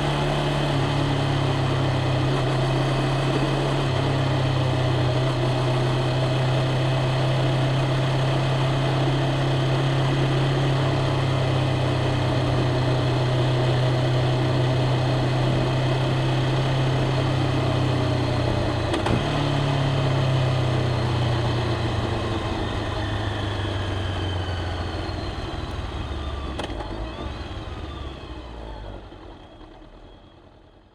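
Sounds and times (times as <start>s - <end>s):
motorcycle engine idling: 20.2s - 30.9s.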